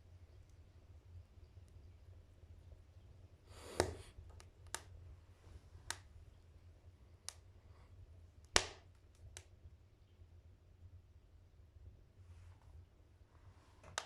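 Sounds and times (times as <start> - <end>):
wood fire crackling and popping: 3.5 - 5.0, 8.4 - 9.5.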